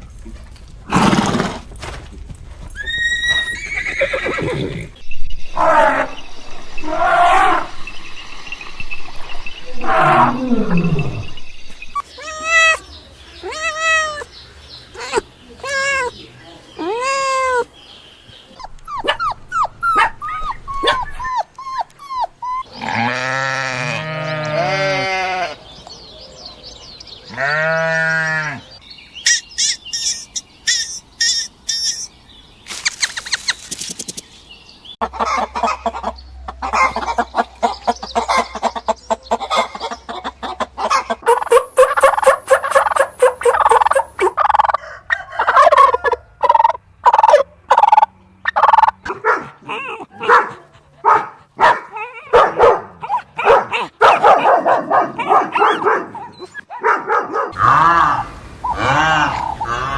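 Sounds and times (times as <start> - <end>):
rapid chatter of animal calls: 35.1 - 44.6.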